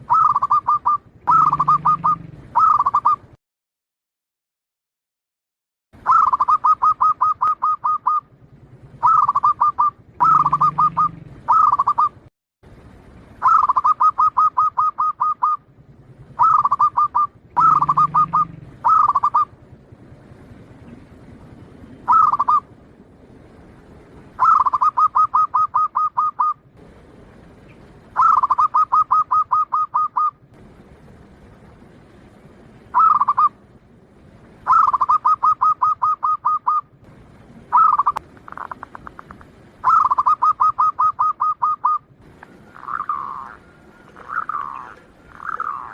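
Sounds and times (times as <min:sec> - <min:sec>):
dove cooing: 0:00.0 - 0:03.3, 0:06.1 - 0:08.3, 0:08.9 - 0:12.2, 0:13.4 - 0:19.6, 0:22.0 - 0:22.8, 0:24.3 - 0:26.6, 0:27.6 - 0:30.4, 0:32.9 - 0:33.6, 0:34.6 - 0:36.9, 0:37.6 - 0:45.9.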